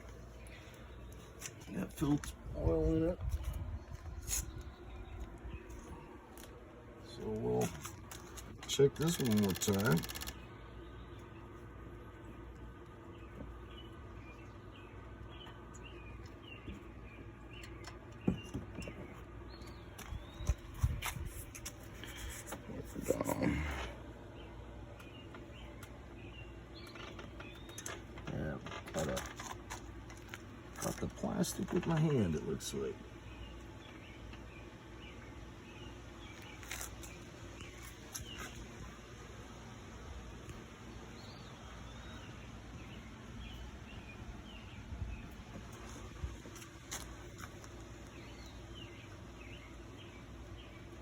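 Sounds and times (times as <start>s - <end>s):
faint steady hum: 0.0s - 51.0s
small birds chirping: 0.0s - 51.0s
sharp clicks: 7.8s - 10.5s.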